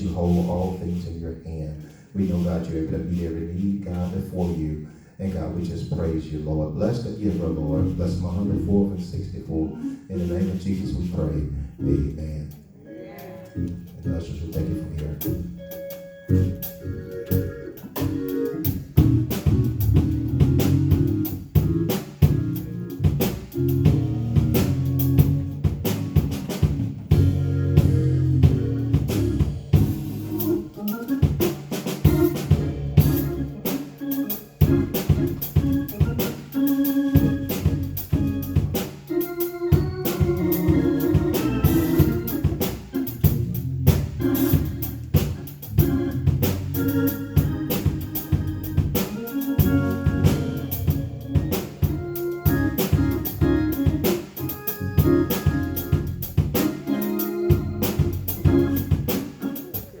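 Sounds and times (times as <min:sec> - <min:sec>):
organ music: 0:00.0 - 1:00.0
drum kit playing: 0:13.2 - 1:00.0.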